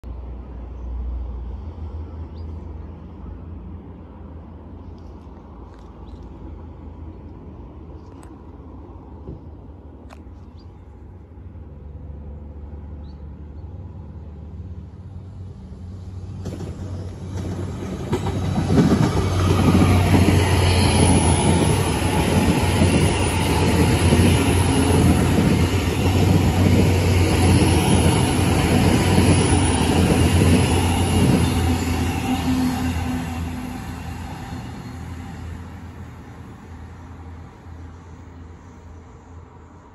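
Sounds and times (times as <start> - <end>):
train passing on diesel power: 10.9 - 39.9
rush of wheels on rail: 14.1 - 39.3.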